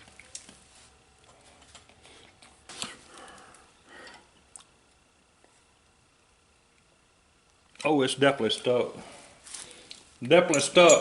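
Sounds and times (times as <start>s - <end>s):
small metal parts clicking: 10.5s - 11.0s.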